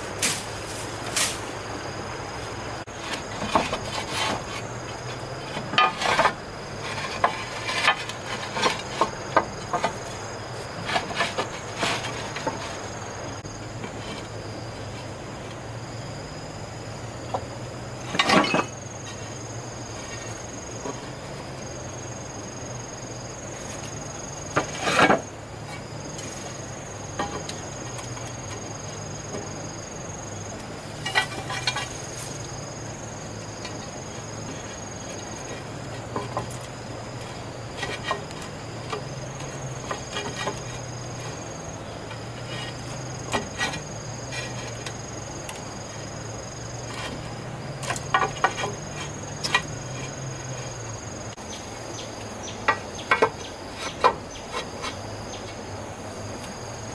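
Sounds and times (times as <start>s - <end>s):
insects trilling: 0.0s - 56.9s
knocks and clatter: 2.9s - 10.2s, 46.9s - 50.2s, 52.6s - 55.6s.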